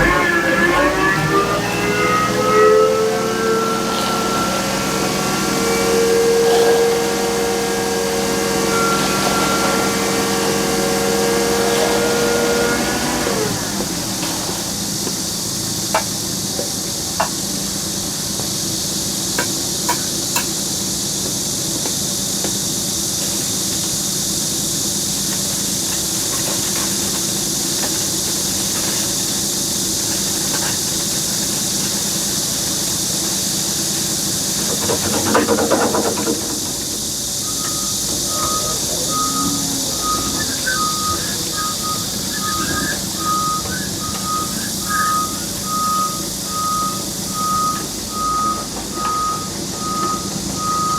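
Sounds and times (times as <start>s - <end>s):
reversing alarm beeping: 0.0s - 13.6s, 37.1s - 50.9s
heavy machine engine running: 0.0s - 50.9s.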